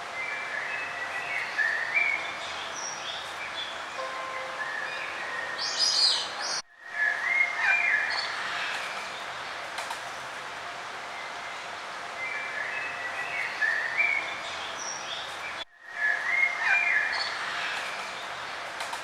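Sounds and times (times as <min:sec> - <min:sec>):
steady outdoor hiss: 0:00.0 - 0:19.0
songbirds warbling: 0:00.2 - 0:09.6.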